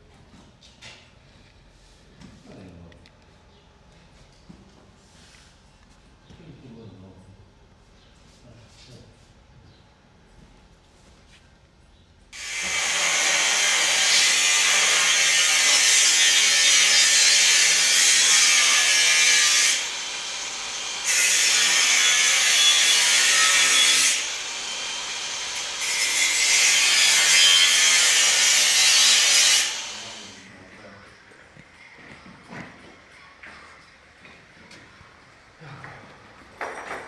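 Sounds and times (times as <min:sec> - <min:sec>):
power tool running under load: 0:12.4 - 0:30.4.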